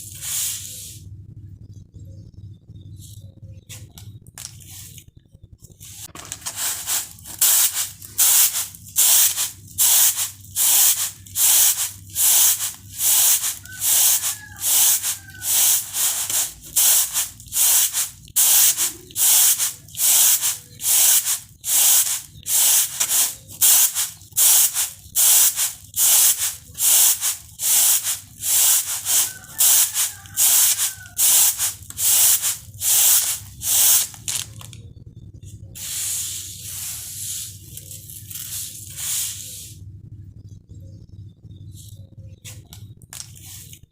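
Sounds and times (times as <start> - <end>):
rice swishing on a tray: 5.8 - 34.4.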